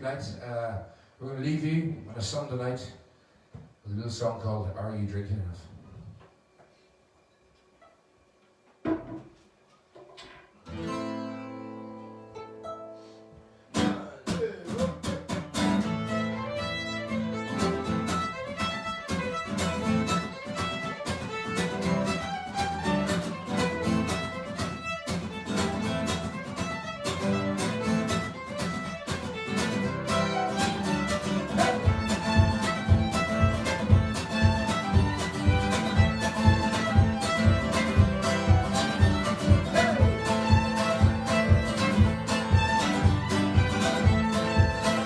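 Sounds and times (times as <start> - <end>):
acoustic band playing: 10.7 - 45.0.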